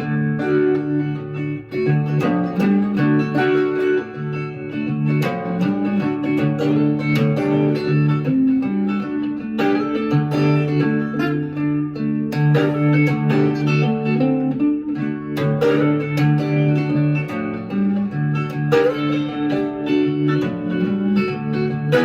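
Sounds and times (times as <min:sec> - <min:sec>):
instrumental blues guitar: 0:00.0 - 0:22.0.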